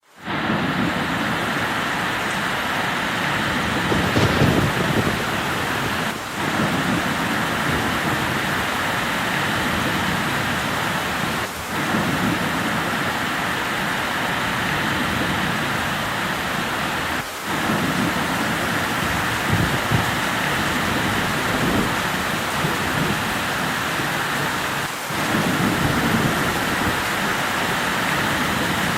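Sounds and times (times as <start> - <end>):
heavy rain pouring: 0.0 - 28.9
low thunder rumble: 3.6 - 8.6.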